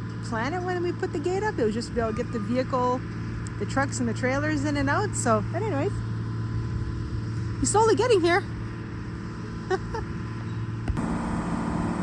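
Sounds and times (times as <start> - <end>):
excavator engine running: 11.0 - 12.0.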